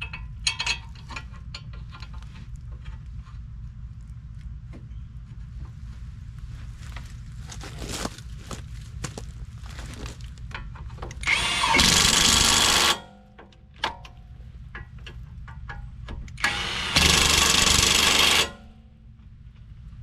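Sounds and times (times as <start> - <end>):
metal clicks and knocks: 0.0 - 3.0, 10.5 - 11.9, 13.1 - 18.6
impact wrench: 11.2 - 13.2, 16.4 - 18.8.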